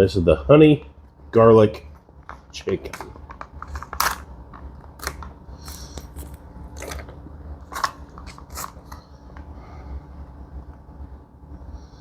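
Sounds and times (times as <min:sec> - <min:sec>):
foil pouch crinkling: 0:02.9 - 0:09.1.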